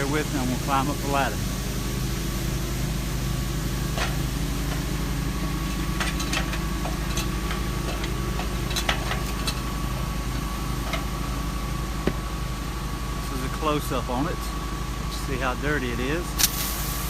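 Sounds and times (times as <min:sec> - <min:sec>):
pressure washer engine running: 0:00.0 - 0:17.0
ladder clicks and knocks: 0:05.9 - 0:10.1.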